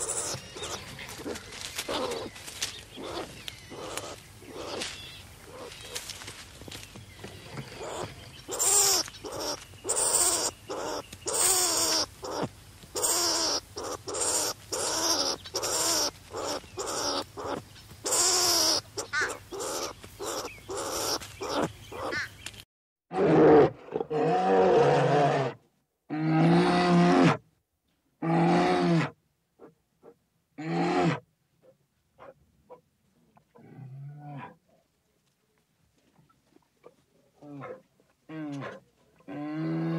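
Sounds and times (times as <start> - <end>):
long low animal calls: 7.4 - 22.3
short pitched animal cries: 7.8 - 22.3.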